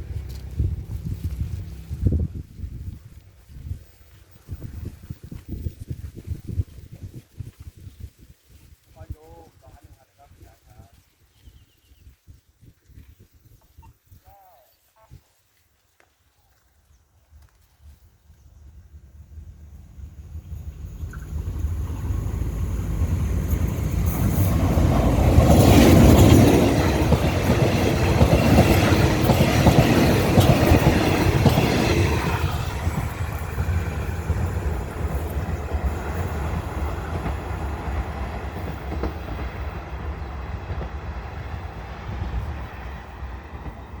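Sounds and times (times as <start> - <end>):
diesel train engine: 18.1 - 44.0
carriages rattling over rail joints: 20.7 - 40.0.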